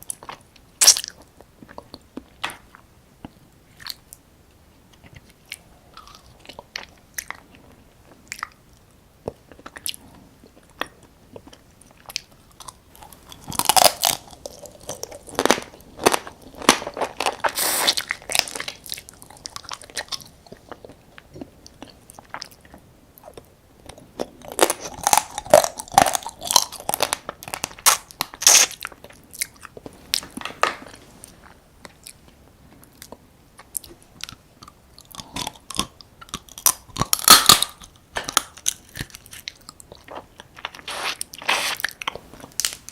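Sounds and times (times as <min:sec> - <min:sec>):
chewing: 0:09.2 - 0:42.9
crunching crab shell: 0:12.0 - 0:20.3, 0:24.2 - 0:31.5, 0:35.0 - 0:42.9.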